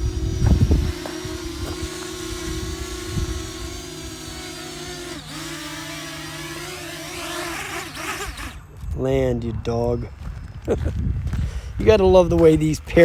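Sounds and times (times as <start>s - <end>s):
drone propellers buzzing: 0.0s - 8.8s.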